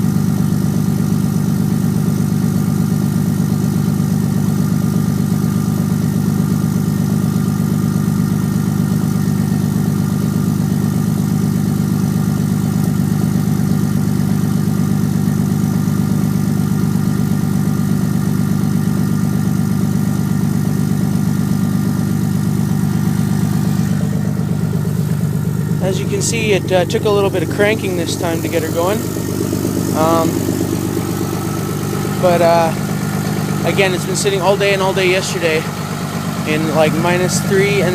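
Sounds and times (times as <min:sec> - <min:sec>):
pickup engine idling: 0:00.0 - 0:37.9.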